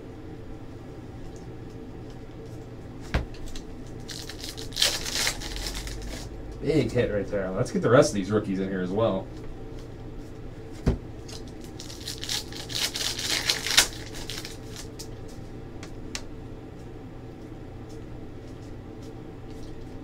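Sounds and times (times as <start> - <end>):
card packaging crinkling: 3.5 - 6.4, 11.2 - 15.2.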